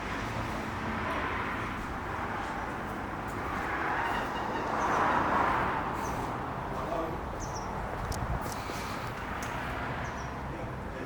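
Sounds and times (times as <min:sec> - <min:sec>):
car road noise rumble: 0:00.0 - 0:11.0.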